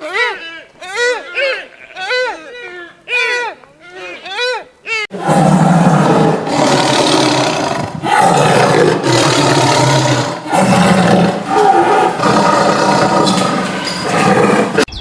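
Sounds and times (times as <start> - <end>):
big cat roaring: 5.2 - 14.9.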